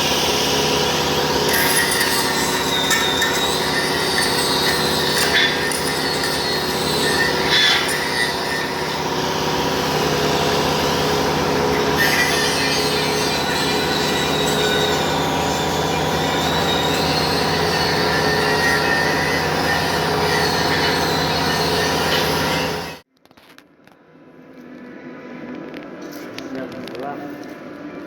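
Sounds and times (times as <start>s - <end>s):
high wavering squeal: 0.0s - 23.0s
metalworking machinery running: 0.0s - 23.0s.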